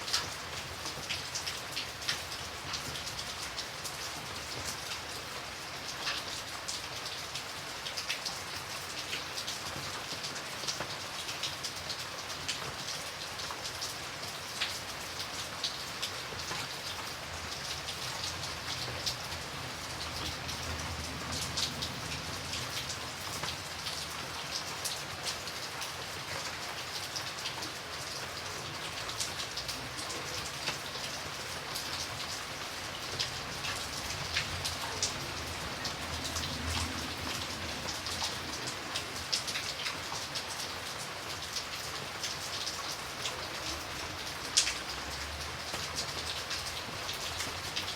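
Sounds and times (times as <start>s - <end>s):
raindrops ticking on a surface: 0.0s - 47.9s
rain hissing: 28.4s - 42.2s.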